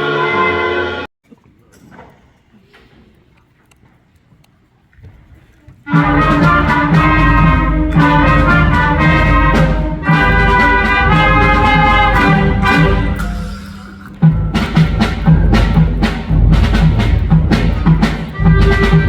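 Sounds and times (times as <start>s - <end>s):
brass band music: 0.0s - 1.1s, 5.9s - 19.0s.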